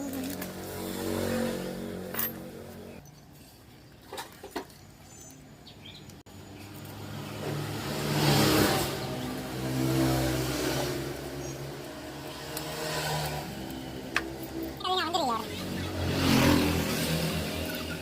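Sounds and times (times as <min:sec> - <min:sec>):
motor vehicle engine: 0:00.0 - 0:03.0, 0:05.1 - 0:18.0.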